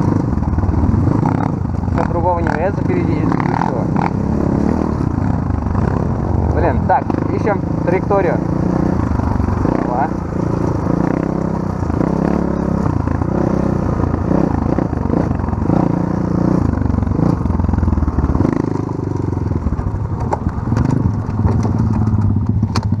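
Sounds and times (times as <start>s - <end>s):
off-road motorcycle engine: 0.0s - 23.0s
clatter: 16.7s - 23.0s.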